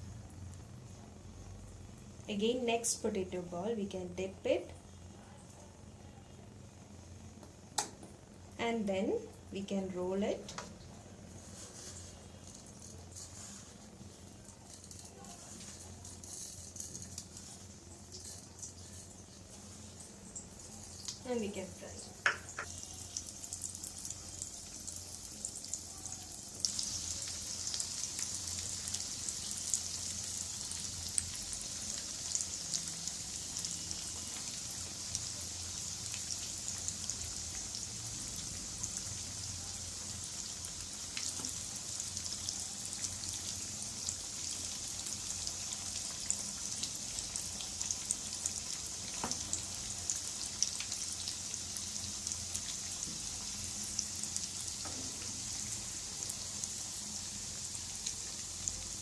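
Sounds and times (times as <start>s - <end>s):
hot oil sizzling: 6.3s - 59.0s
small crackles and pops: 14.4s - 19.1s, 20.4s - 21.3s.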